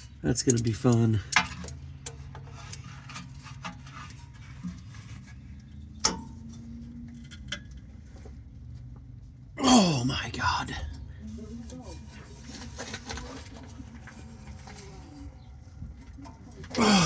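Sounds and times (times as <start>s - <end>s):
hand tools tapping on metal: 0.3s - 4.2s.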